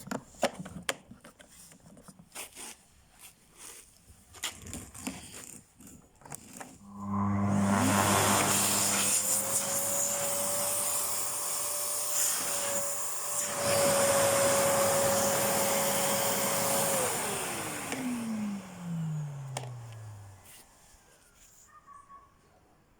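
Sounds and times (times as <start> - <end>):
vacuum cleaner motor whine: 6.8 - 20.7.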